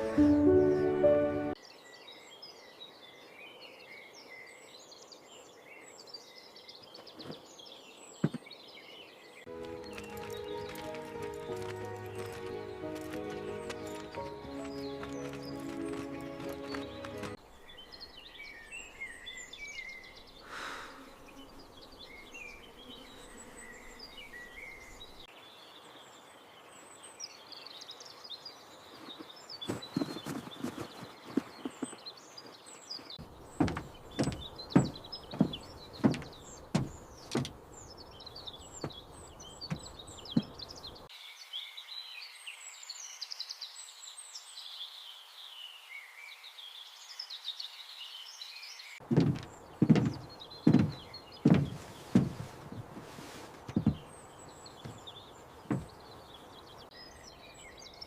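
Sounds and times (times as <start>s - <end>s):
small birds chirping: 0.0s - 58.0s
sharp knocks: 33.6s - 37.6s, 49.1s - 52.5s, 55.7s - 56.0s.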